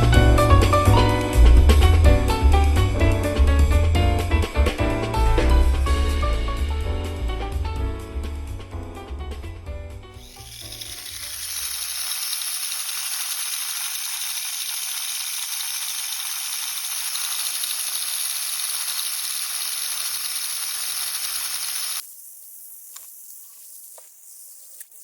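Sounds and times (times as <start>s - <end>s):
background music: 0.0s - 10.2s
small electric motor whirring: 10.2s - 25.0s.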